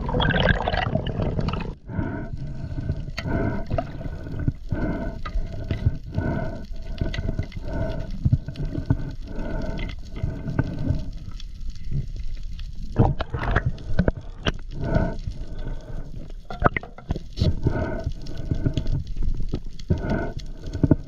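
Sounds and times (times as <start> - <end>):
water sloshing and gurgling: 0.0 - 21.0.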